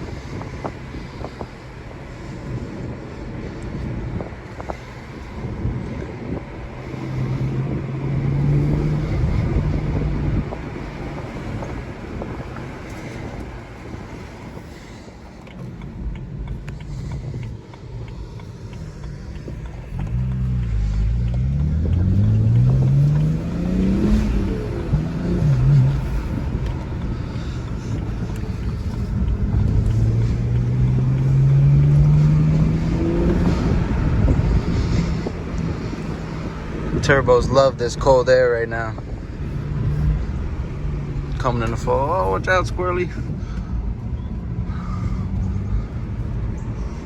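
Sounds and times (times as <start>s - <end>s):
car engine accelerating: 0.0s - 47.0s
road and wind noise: 0.0s - 47.0s.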